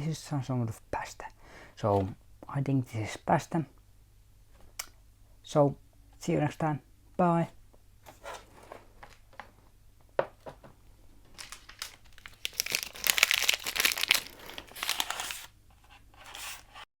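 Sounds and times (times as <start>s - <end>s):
snack packaging crinkling: 11.3s - 15.5s.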